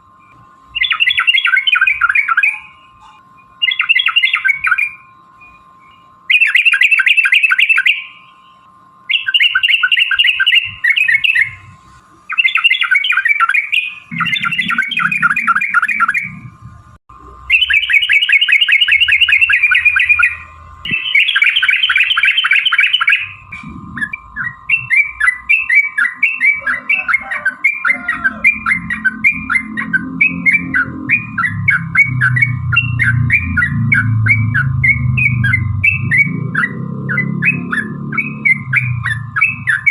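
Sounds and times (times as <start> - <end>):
bird chattering calls: 0.8 - 5.0, 9.1 - 16.5, 17.3 - 39.9
low rumble: 28.4 - 39.9.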